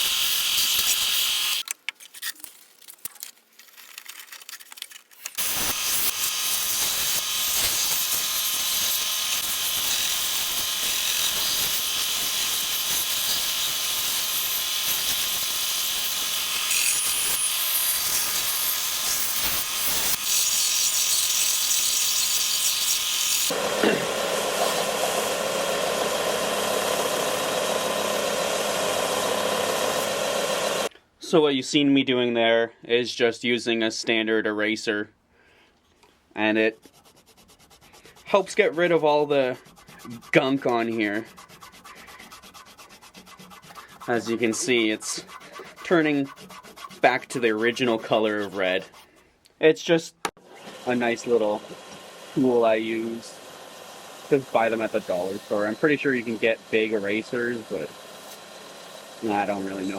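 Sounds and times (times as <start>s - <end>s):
eraser rubbing on sanding belt: 5.4s - 23.6s, 36.5s - 49.3s, 54.3s - 58.5s, 59.2s - 59.9s
belt sander running: 5.4s - 30.9s, 37.8s - 49.0s, 50.4s - 59.9s.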